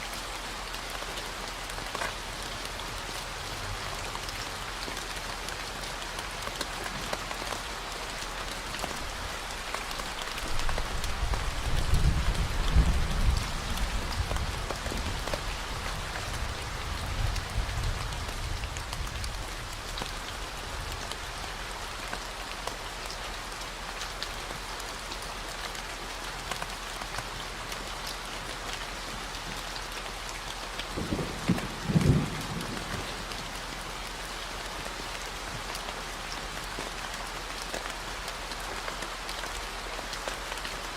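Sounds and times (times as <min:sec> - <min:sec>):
steady rain: 0:00.0 - 0:40.9
thunder rumbling: 0:31.0 - 0:33.2.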